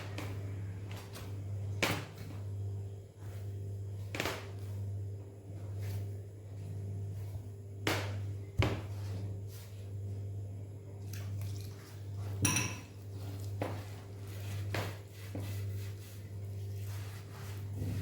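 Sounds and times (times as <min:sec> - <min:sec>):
dough squishing by hand: 0:00.0 - 0:18.0
steady low hum: 0:00.0 - 0:18.0
knocks against bowl: 0:12.4 - 0:12.9.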